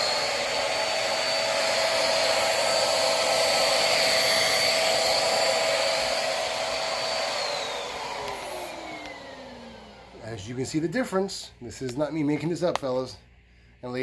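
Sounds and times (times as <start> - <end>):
vacuum cleaner motor whine: 0.0 - 11.0.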